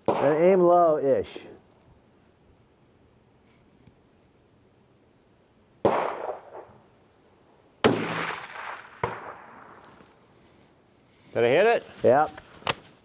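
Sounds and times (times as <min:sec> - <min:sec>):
rifle shots: 0:05.8 - 0:06.8, 0:07.8 - 0:09.8
bullet striking steel target: 0:07.8 - 0:09.4.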